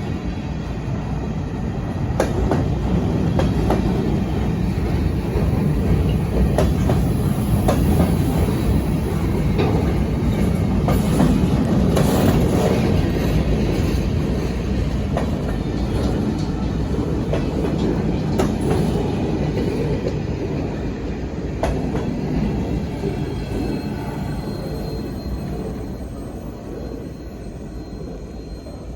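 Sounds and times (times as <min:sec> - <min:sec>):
train wheels rumbling: 0:00.0 - 0:28.9
wheels clicking over rail joints: 0:02.2 - 0:20.6.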